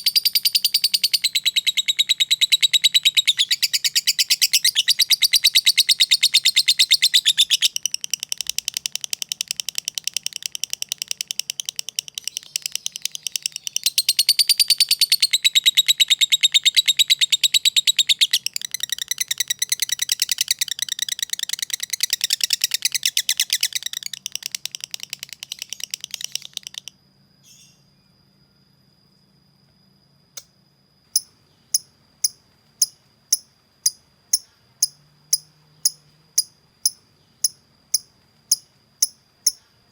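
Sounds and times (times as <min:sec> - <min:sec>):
lovebird chattering: 0:00.0 - 0:26.9
sharp ticks: 0:07.4 - 0:15.2, 0:18.4 - 0:26.9.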